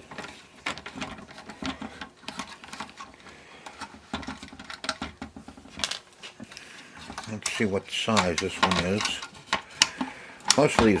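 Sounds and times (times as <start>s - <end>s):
plastic parts clicking and tapping: 0.0s - 11.0s.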